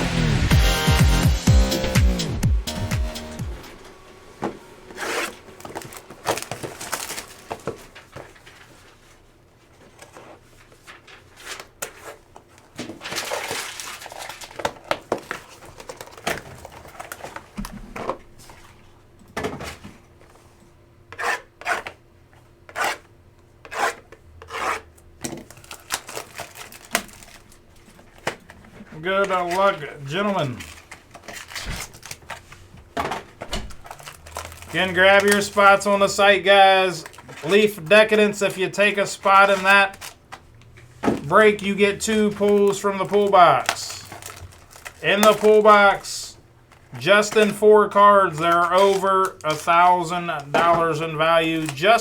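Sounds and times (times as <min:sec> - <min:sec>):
cardboard and wrapper rubbing: 0:04.8 - 0:09.2, 0:12.9 - 0:17.5, 0:25.4 - 0:28.2, 0:28.9 - 0:32.8, 0:33.8 - 0:36.1, 0:41.3 - 0:46.1, 0:48.3 - 0:52.0.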